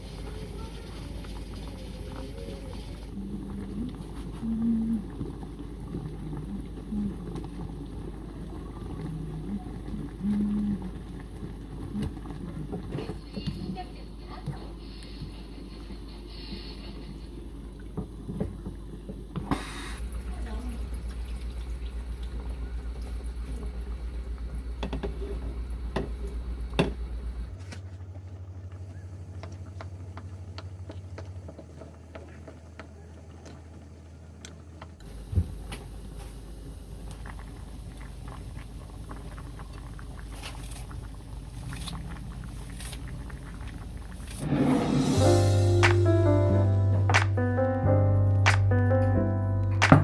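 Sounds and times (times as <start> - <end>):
background music: 44.4 - 50.0.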